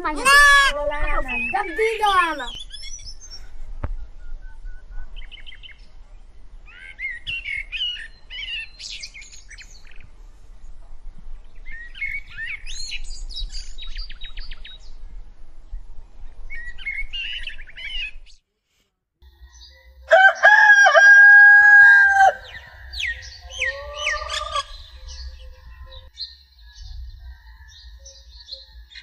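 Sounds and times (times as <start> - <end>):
small birds chirping and warbling: 0.0 - 18.4, 19.3 - 20.8, 21.8 - 29.0
faint low rumble: 9.3 - 18.3.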